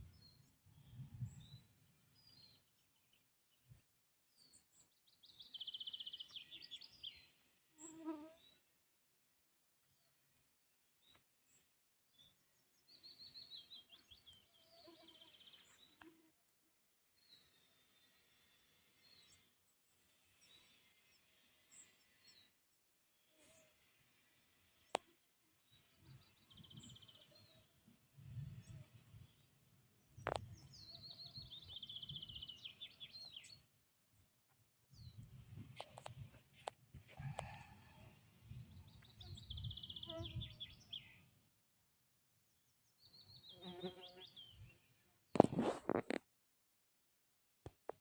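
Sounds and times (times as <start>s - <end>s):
faint bird chirps and trill: 38.6s - 41.3s.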